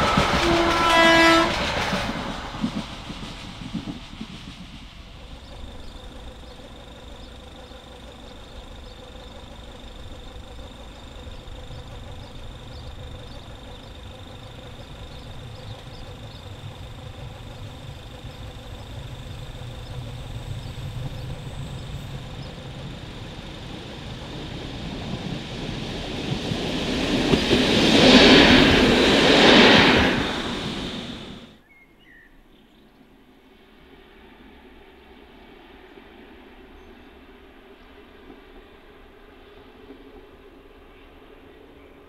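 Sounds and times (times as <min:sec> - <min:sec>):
diesel railcar rumble: 0:00.0 - 0:31.6.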